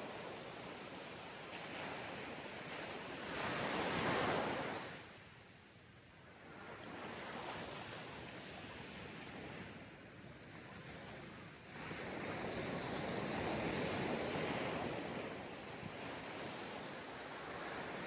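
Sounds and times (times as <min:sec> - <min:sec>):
sea waves breaking on beach: 0:00.0 - 0:05.1.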